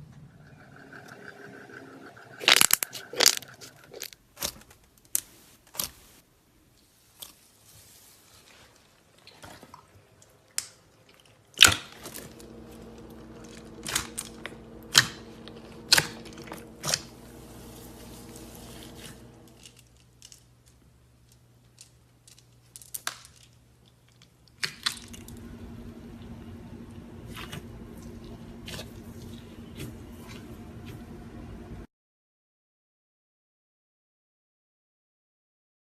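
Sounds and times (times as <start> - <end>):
low hum: 12.1 - 19.8, 25.0 - 31.9.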